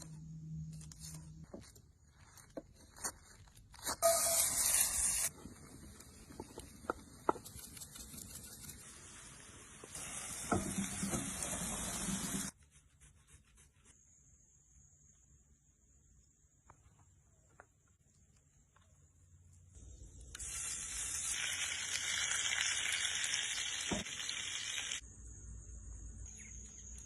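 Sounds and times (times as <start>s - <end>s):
long hiss: 8.2s - 12.5s
food sizzling in a pan: 8.8s - 12.5s, 20.4s - 25.0s.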